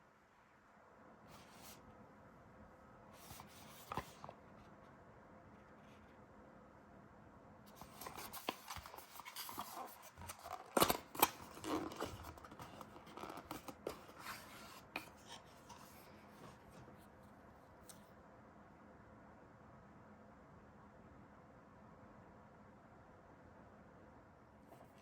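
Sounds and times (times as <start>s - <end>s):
packaging rustling and scraping: 3.2s - 4.4s, 7.7s - 17.1s.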